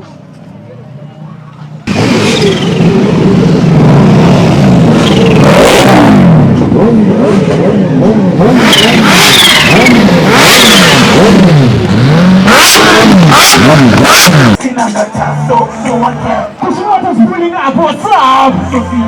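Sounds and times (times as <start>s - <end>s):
car engine revving hard: 1.9s - 14.6s.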